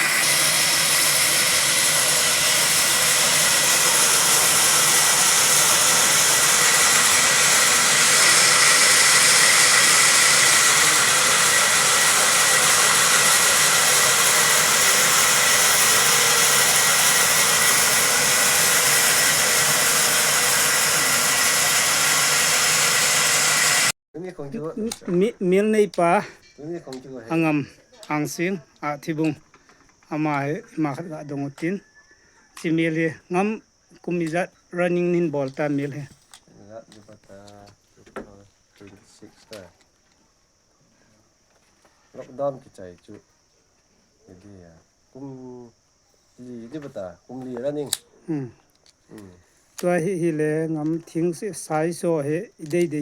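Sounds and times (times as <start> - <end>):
sawmill machinery whining: 0.0 - 24.0.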